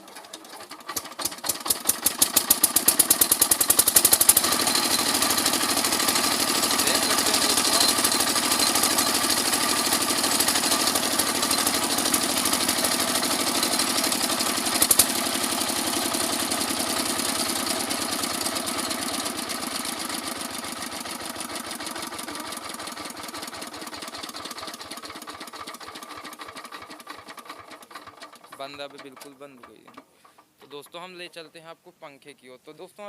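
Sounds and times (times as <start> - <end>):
diesel engine running down: 2.1 - 24.6.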